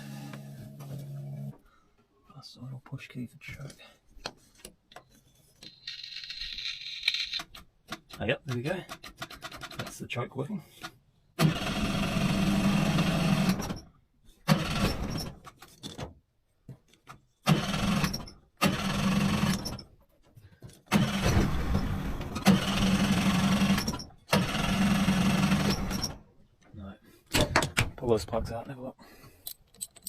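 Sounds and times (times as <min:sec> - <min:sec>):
starter motor cranking outboard engine: 0:20.9 - 0:21.6, 0:22.4 - 0:26.2.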